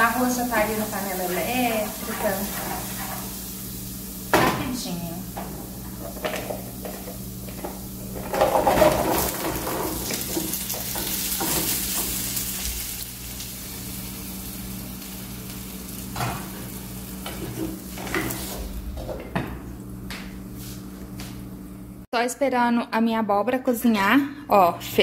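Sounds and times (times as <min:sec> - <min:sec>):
pumpkin sizzling in frying pan: 0:00.0 - 0:19.0.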